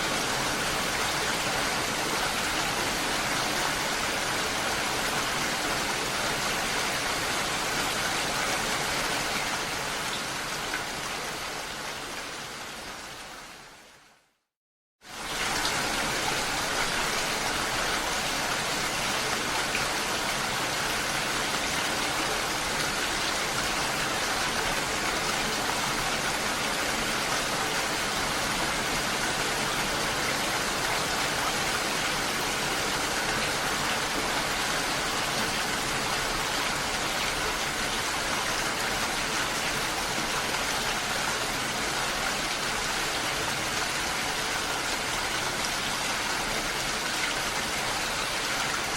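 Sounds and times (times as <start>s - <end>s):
water rushing: 15.1s - 48.9s.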